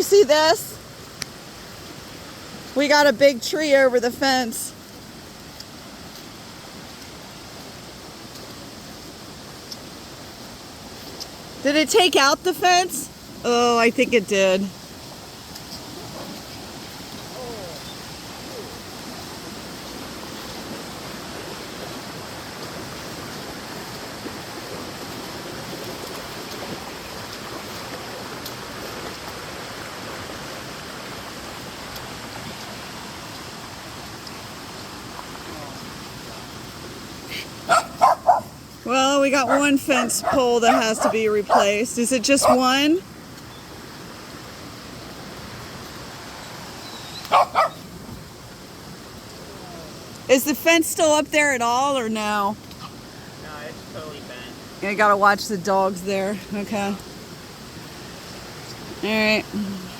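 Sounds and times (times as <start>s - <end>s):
rushing creek: 0.0s - 59.9s
steady background hiss: 0.0s - 59.9s
dog barking: 37.7s - 38.5s, 39.4s - 41.7s, 42.4s - 42.7s, 47.2s - 47.8s.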